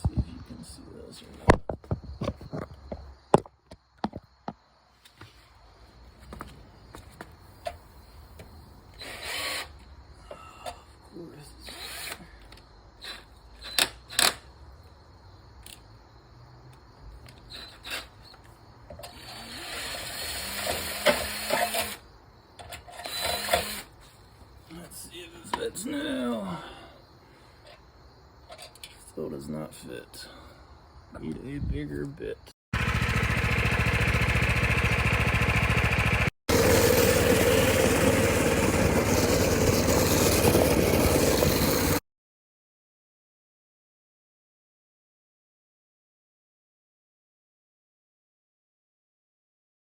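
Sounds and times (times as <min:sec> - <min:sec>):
power drill drilling: 0:09.0 - 0:09.8, 0:11.7 - 0:12.2, 0:19.0 - 0:22.0, 0:23.0 - 0:23.9, 0:36.5 - 0:42.0
small motorcycle engine running: 0:32.8 - 0:42.0.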